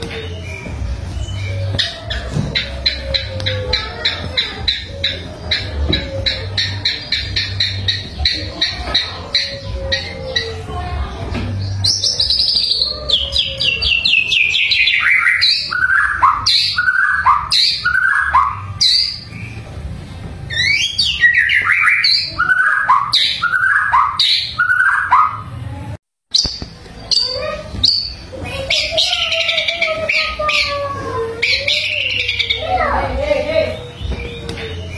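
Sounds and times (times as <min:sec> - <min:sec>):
bird singing whistled notes: 0:20.5 - 0:25.3.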